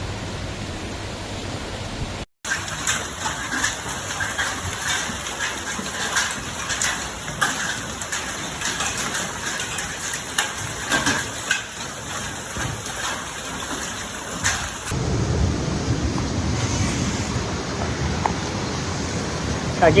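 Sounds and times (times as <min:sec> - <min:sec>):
heavy rain: 0:00.0 - 0:20.0
rushing floodwater: 0:02.4 - 0:15.0
deep rumbling noise: 0:14.8 - 0:20.0.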